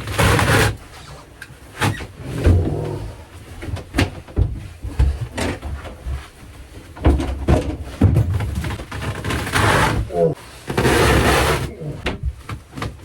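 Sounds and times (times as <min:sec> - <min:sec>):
knocks and bangs on fiberglass: 0:07.0 - 0:09.9.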